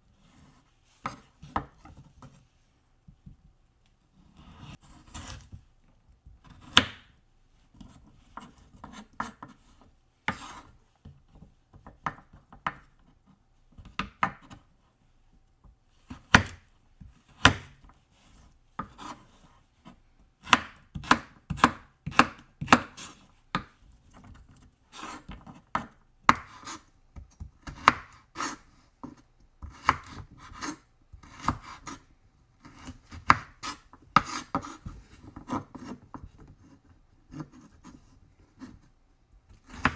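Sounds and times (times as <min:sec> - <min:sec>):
knife chopping on cutting board: 0:01.0 - 0:01.8, 0:06.4 - 0:07.1, 0:16.1 - 0:16.6, 0:17.3 - 0:17.8, 0:20.4 - 0:23.7, 0:25.0 - 0:32.0, 0:32.6 - 0:36.0, 0:39.6 - 0:39.9.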